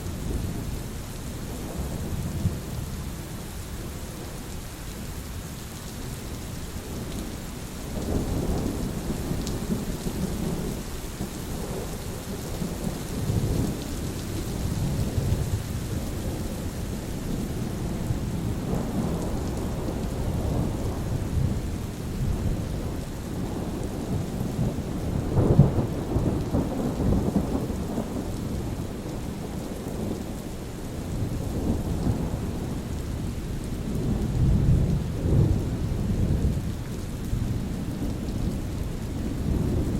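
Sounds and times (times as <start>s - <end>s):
steady rain hiss: 0.0s - 39.9s
rolling thunder: 33.9s - 36.8s.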